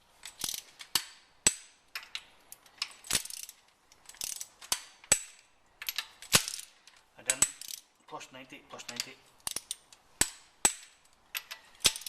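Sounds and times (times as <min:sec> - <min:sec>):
torque wrench ratcheting: 0:00.3 - 0:01.0, 0:03.0 - 0:06.7, 0:07.3 - 0:07.9, 0:09.4 - 0:12.0
sharp wrench click: 0:08.9 - 0:12.0.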